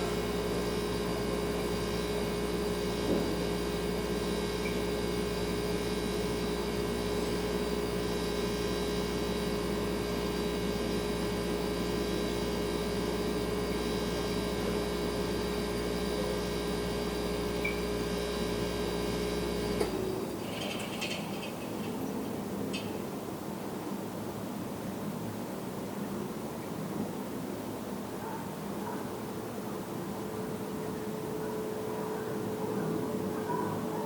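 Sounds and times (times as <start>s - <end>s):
refrigerator compressor humming: 0.0s - 23.5s.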